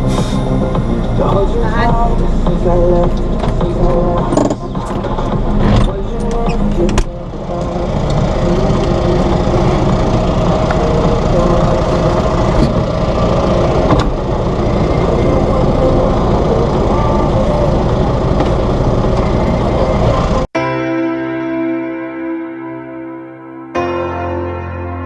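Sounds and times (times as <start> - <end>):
heavy vehicle engine rumbling: 0.0 - 20.6.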